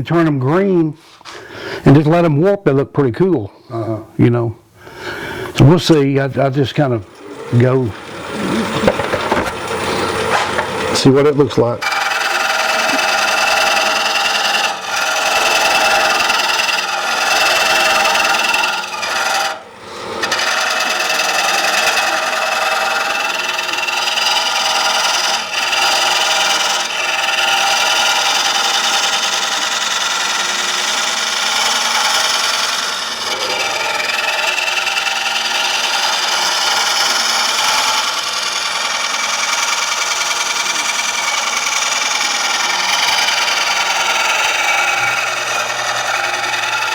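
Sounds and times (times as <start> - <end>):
lathe hum: 5.9 - 46.9
gouge rasping on wet wood: 11.8 - 46.9.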